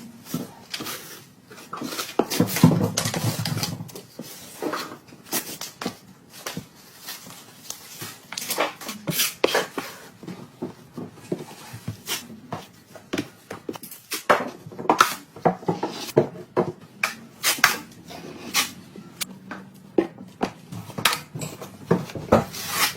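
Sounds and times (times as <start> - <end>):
hand tools scraping drywall: 21.9 - 22.9.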